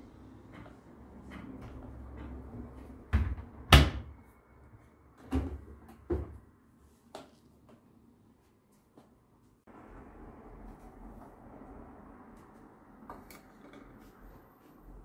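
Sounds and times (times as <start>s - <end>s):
household knocks and clunks: 5.2s - 6.5s.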